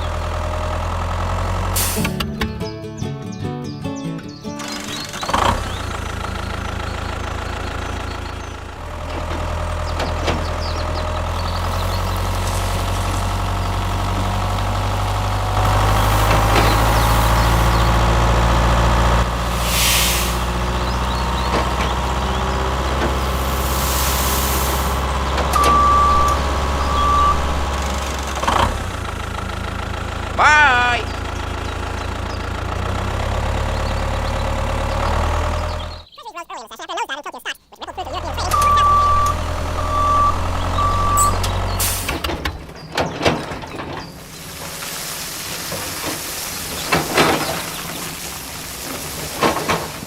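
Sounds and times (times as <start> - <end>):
vehicle engine running: 0.0 - 3.3, 4.3 - 36.1, 38.0 - 43.0
short hisses: 1.8 - 2.2, 19.6 - 20.5, 23.4 - 25.0
brief beeps: 25.6 - 27.8, 38.4 - 41.6.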